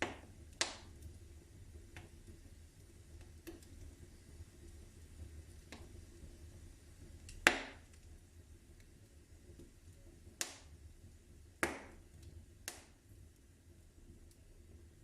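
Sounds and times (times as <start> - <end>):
sharp fire pops: 0.0 - 1.0, 7.2 - 8.0, 10.3 - 10.8, 11.6 - 12.0, 12.6 - 13.0
wood fire crackling: 0.0 - 15.0.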